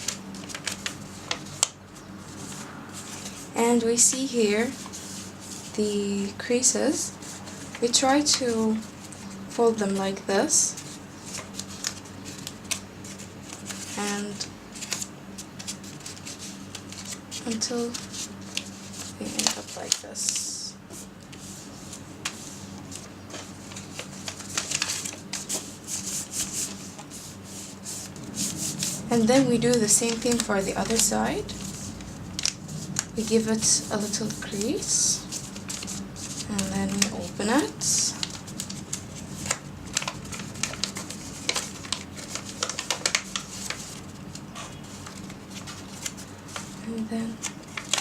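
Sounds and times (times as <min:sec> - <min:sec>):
faint low hum: 0:00.0 - 0:48.0
paper rustling and crinkling: 0:00.0 - 0:48.0.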